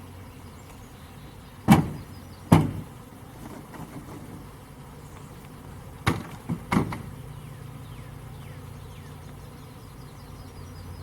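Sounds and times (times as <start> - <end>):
bee swarm buzzing: 0.0 - 11.0
sharp knocks: 1.7 - 2.9, 6.0 - 7.1.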